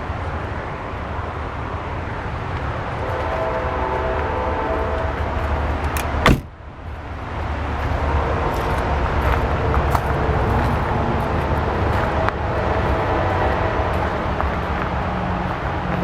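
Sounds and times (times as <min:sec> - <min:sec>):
sharp thump: 0:06.2 - 0:06.6.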